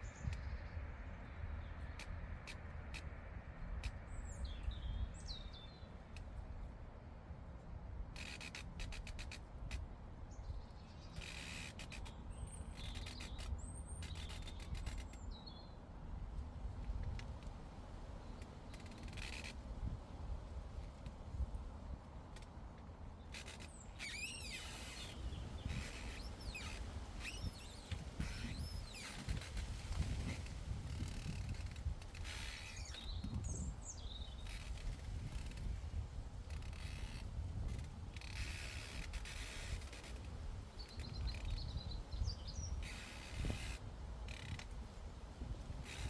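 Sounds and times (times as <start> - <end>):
wind rumble on microphone: 0.0 - 6.9, 12.1 - 46.0
songbird chirping: 31.3 - 35.6.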